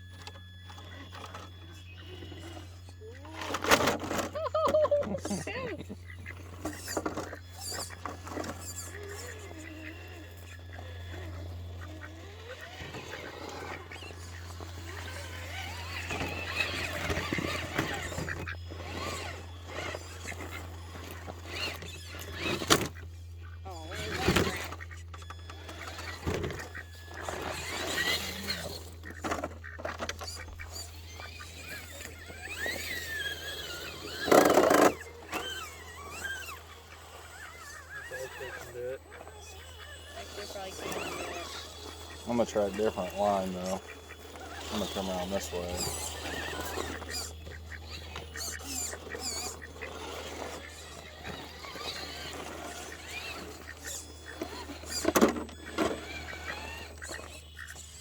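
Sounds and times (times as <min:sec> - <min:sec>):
small birds chirping: 0:00.0 - 0:58.0
toy truck electric motor whining: 0:00.0 - 0:58.0.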